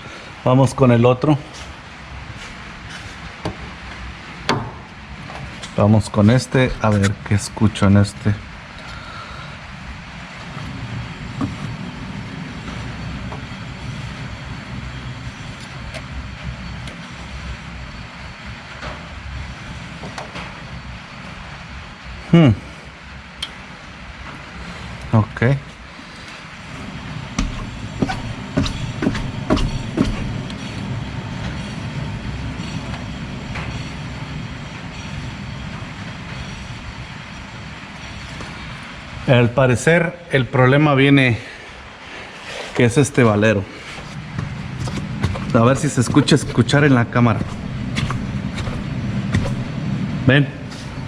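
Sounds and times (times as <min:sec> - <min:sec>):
car drivetrain rumbling: 0:06.6 - 0:07.2, 0:26.5 - 0:30.8, 0:43.9 - 0:50.1
sharp knocks: 0:27.4 - 0:30.4, 0:44.4 - 0:49.7.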